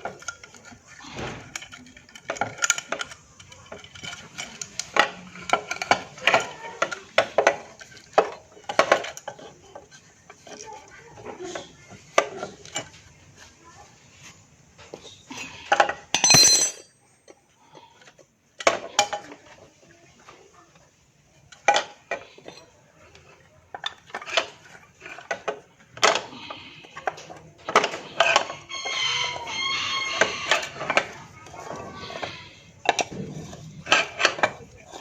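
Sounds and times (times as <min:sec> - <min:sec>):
metal tools clinking: 0:16.2 - 0:17.2.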